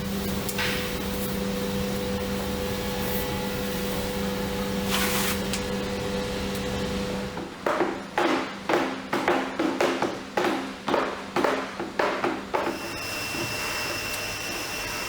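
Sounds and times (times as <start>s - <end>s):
machine humming: 0.0s - 7.6s, 12.6s - 15.0s.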